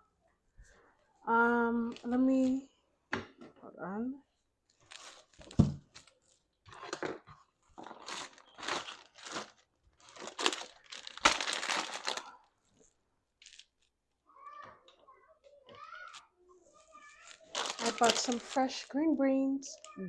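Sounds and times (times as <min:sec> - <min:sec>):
plastic bag crinkling: 0:04.7 - 0:07.2, 0:07.8 - 0:12.5, 0:13.4 - 0:13.9, 0:17.1 - 0:20.0.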